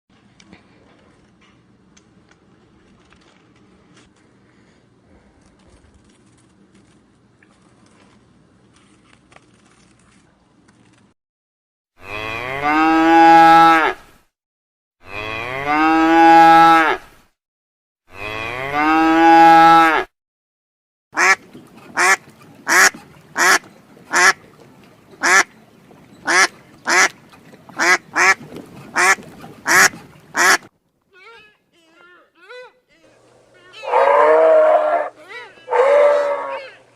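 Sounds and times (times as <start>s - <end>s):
cow mooing: 12.0s - 14.0s, 15.0s - 17.0s, 18.1s - 20.1s, 33.8s - 36.8s
duck quacking: 21.2s - 21.4s, 22.0s - 24.4s, 25.2s - 25.5s, 26.2s - 27.2s, 27.8s - 30.7s.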